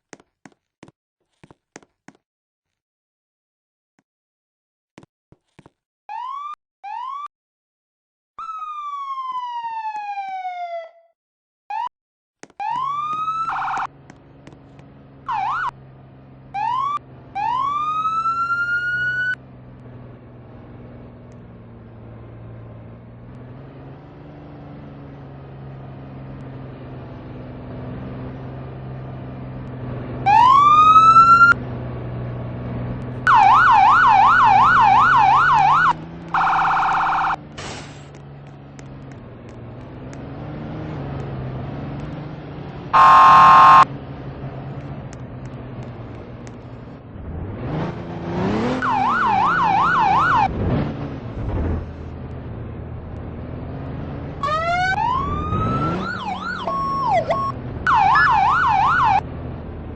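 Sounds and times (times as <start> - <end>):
fire truck electronic siren: 6.1 - 7.3, 8.4 - 11.1, 11.7 - 11.9, 12.6 - 13.9, 15.2 - 15.8, 16.5 - 19.4, 30.2 - 31.6, 33.2 - 37.5, 42.9 - 43.9, 48.4 - 50.5, 54.4 - 59.3
flat blaring horn: 43.0 - 43.8.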